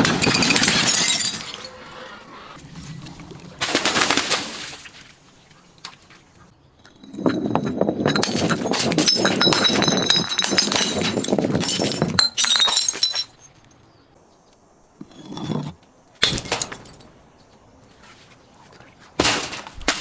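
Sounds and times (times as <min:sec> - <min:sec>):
glass bottle crushing and shattering: 0:00.0 - 0:01.8, 0:06.9 - 0:13.6, 0:16.2 - 0:17.0.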